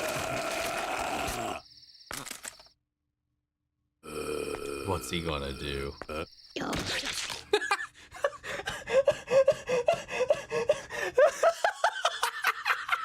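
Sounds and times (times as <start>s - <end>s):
person laughing: 7.4s - 13.0s.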